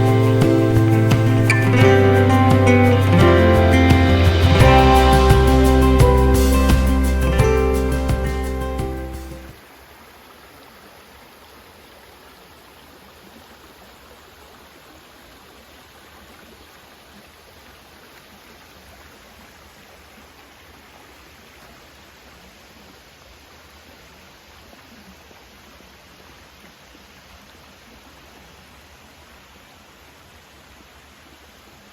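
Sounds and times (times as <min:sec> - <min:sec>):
river water rushing: 0:00.0 - 0:24.8.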